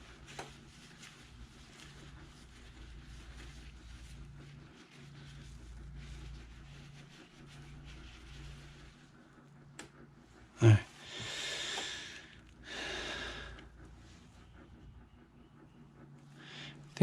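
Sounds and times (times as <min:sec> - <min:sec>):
man speaking: 0:10.6 - 0:11.0
man breathing noisily: 0:10.6 - 0:13.9, 0:16.3 - 0:16.9.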